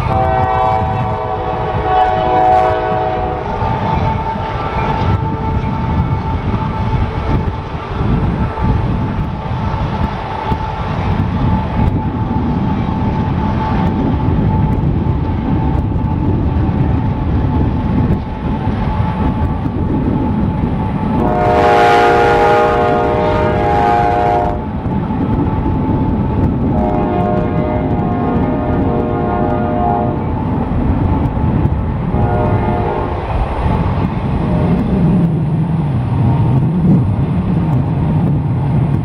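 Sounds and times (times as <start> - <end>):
loud air horn blast: 0.0 - 6.8, 21.2 - 24.6, 26.7 - 30.3, 32.2 - 33.3
distant locomotive horn: 0.0 - 9.3, 21.2 - 24.7, 26.7 - 30.4, 32.1 - 33.4
freight cars rumbling and clacking: 3.3 - 21.4, 24.5 - 39.0.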